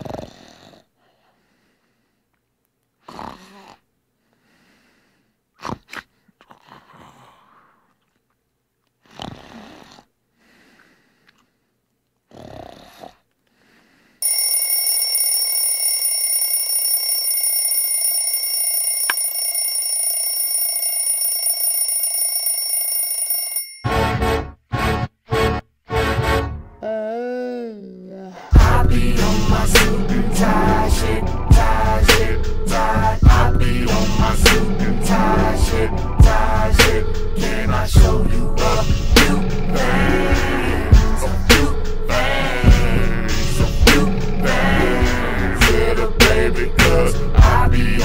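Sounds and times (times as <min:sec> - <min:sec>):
person snoring: 0:00.0 - 0:01.0, 0:03.0 - 0:03.9, 0:05.6 - 0:07.9, 0:09.0 - 0:10.1, 0:12.3 - 0:13.2, 0:26.8 - 0:48.0
electronic ringing tone: 0:14.2 - 0:23.9
stuttering pop song: 0:28.5 - 0:48.0.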